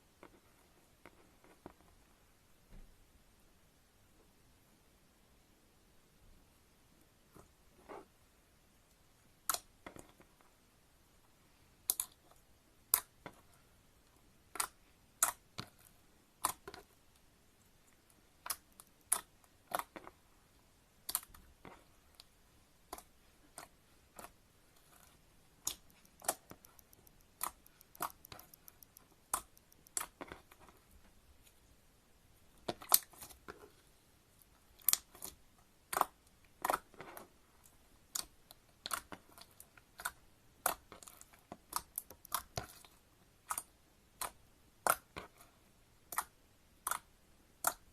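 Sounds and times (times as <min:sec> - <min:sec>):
slime clicking and popping: 0:25.6 - 0:30.2.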